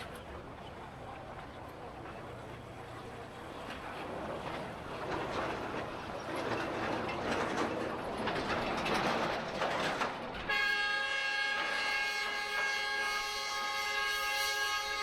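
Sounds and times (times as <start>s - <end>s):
street traffic noise: 0.0s - 10.5s.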